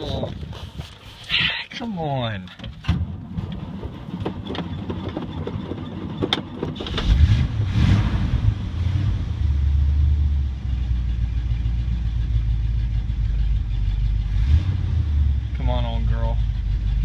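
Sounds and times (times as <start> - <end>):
truck engine cranking: 2.5 - 8.2.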